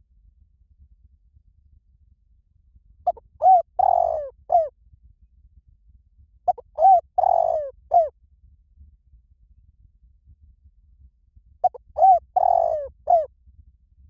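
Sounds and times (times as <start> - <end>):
dove cooing: 3.1 - 4.7, 6.5 - 8.1, 11.6 - 13.3.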